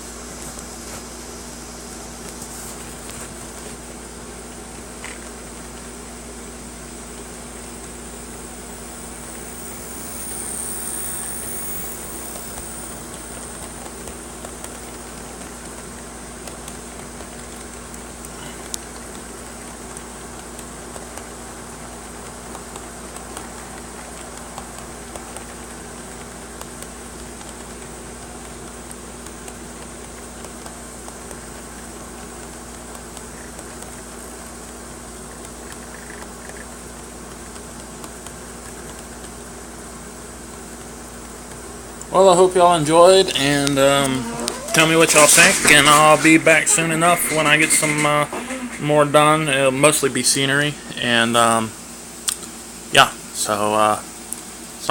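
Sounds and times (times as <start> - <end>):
air conditioner hum: 0.0 - 54.9
model train motor whir: 5.0 - 39.7, 42.4 - 51.6.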